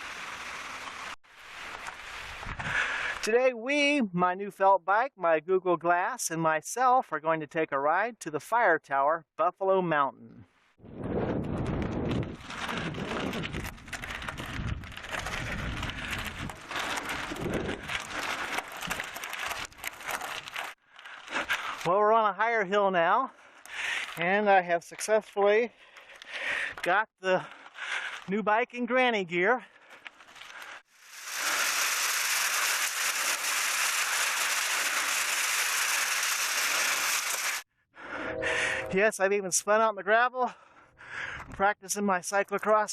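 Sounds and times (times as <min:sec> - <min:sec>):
bicycle riding rushing noise: 0:00.0 - 0:03.2, 0:10.8 - 0:21.9, 0:29.9 - 0:37.7
crackling and rattling: 0:11.0 - 0:21.9, 0:29.8 - 0:37.7.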